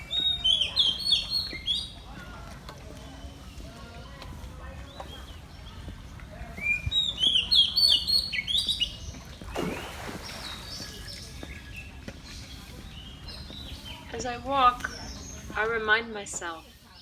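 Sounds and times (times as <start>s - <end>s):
songbird chirping and whistling: 0.0s - 2.0s, 6.6s - 9.2s.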